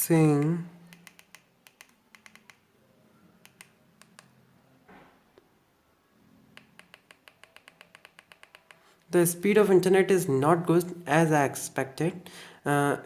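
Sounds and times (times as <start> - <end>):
phone keypad buttons clicking: 0.9 - 2.6, 6.6 - 8.8.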